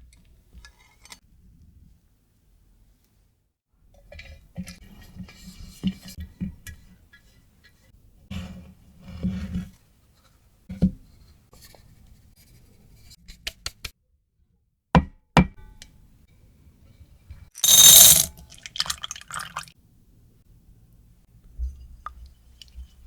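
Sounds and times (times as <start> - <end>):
small rattles: 17.6 - 18.3
utensils clicking and knocking: 17.6 - 18.3.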